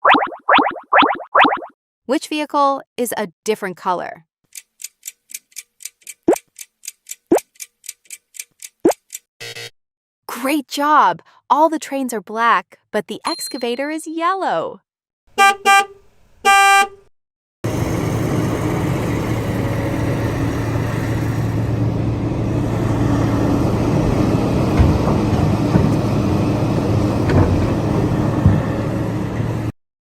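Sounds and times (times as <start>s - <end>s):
vehicle horn honks: 15.4s - 17.0s
road traffic noise: 17.7s - 29.7s.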